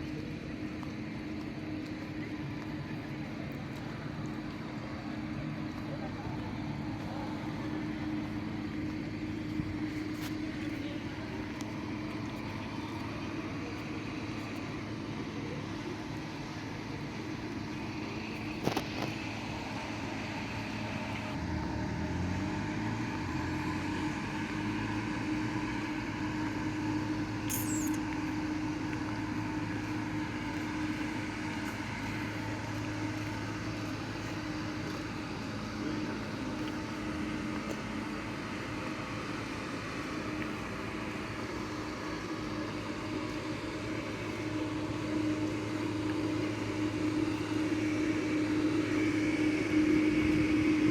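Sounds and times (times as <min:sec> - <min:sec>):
vehicle engine humming: 0:00.0 - 0:50.9
sharp click: 0:27.5 - 0:28.0
short high chirp: 0:27.5 - 0:28.0.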